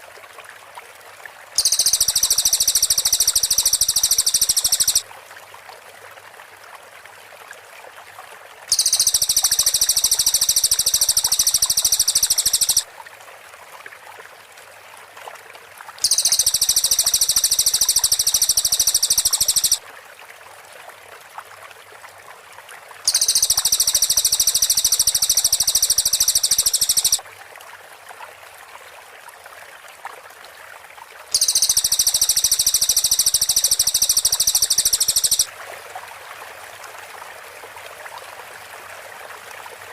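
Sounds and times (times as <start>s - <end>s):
songbird rapid high trills: 1.6s - 5.0s, 8.7s - 12.8s, 16.0s - 19.8s, 23.1s - 27.2s, 31.4s - 35.5s.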